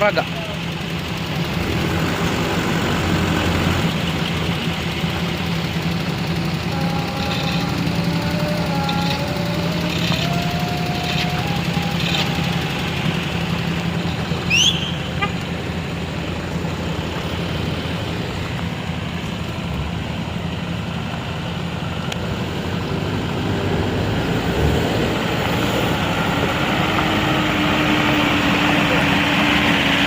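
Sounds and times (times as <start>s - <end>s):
vehicle engine running: 0.0s - 30.0s
short rising squeal: 14.4s - 15.1s.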